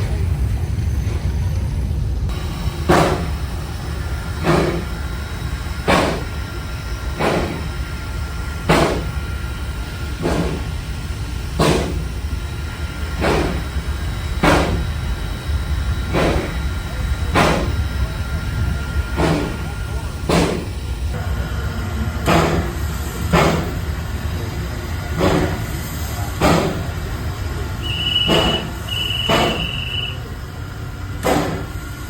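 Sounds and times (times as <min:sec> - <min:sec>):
low rumble: 0:00.0 - 0:07.1
machine puffing: 0:02.3 - 0:21.2, 0:27.8 - 0:30.2.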